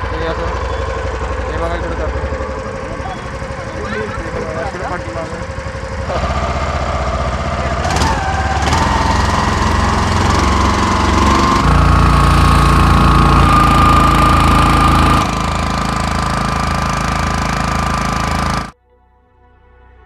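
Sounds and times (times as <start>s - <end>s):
motorboat engine running: 0.0s - 18.8s.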